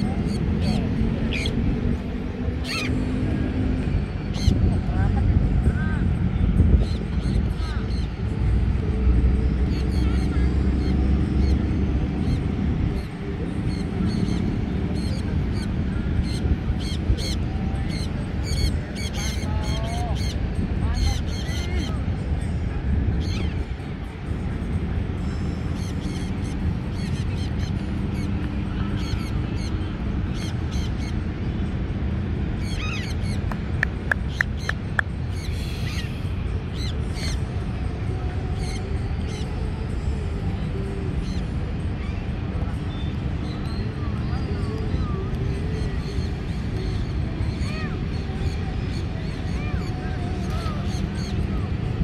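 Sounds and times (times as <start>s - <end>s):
birds chirping: 0.0s - 5.3s, 32.4s - 37.5s
steady low rumble: 0.0s - 52.0s.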